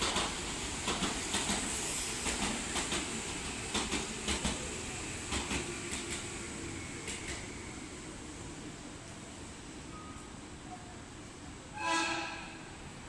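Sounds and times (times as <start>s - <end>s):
train wheels clacking over rail joints: 0.0s - 4.7s, 5.3s - 6.3s
train rumble: 0.0s - 9.4s.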